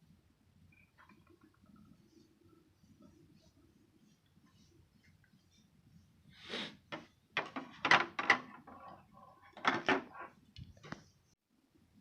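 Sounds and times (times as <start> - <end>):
scrape: 1.9 - 6.9
hard objects knocking and clattering: 6.9 - 10.3.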